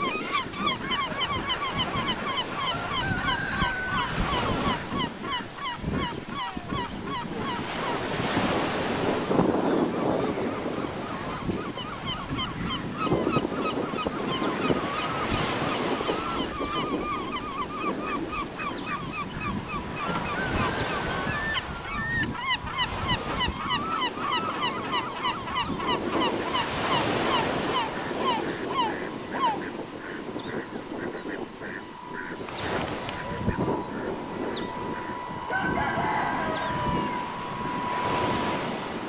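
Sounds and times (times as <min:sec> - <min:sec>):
birds chirping: 0:00.0 - 0:39.0
wind noise on microphone: 0:00.0 - 0:39.0
faint steady high tone: 0:30.5 - 0:39.0.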